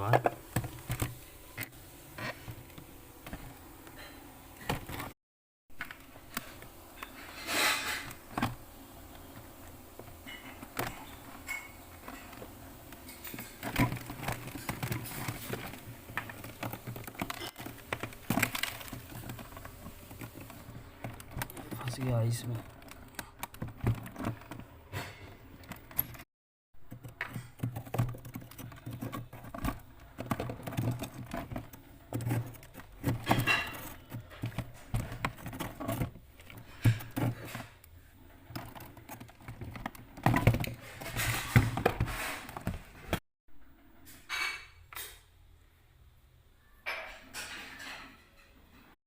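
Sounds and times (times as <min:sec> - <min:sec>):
freezer low hum: 0:00.0 - 0:26.2, 0:26.8 - 0:48.1
hands knocking plastic and ice: 0:12.2 - 0:24.8, 0:26.8 - 0:37.8.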